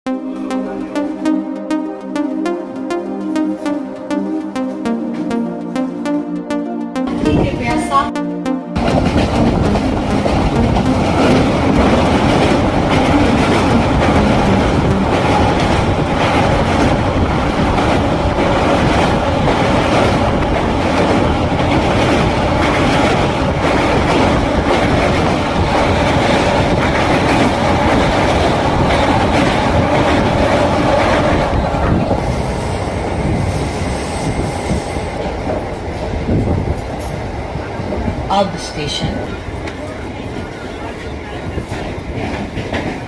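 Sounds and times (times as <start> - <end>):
train wheels rumbling on rails: 8.8 - 38.3, 39.3 - 43.0
clickety-clack of rail joints: 17.6 - 32.2, 35.2 - 38.2, 39.6 - 43.0.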